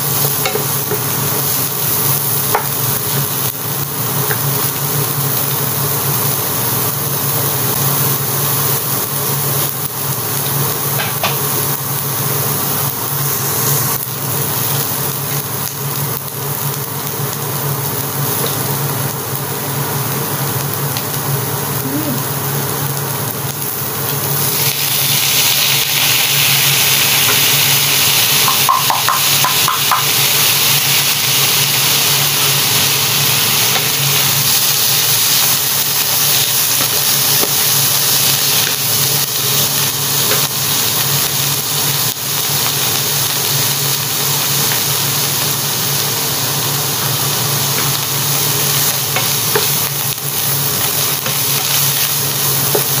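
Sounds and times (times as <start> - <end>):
food sizzling in frying pan: 0.0 - 53.0
wooden spatula stir-frying: 24.2 - 53.0.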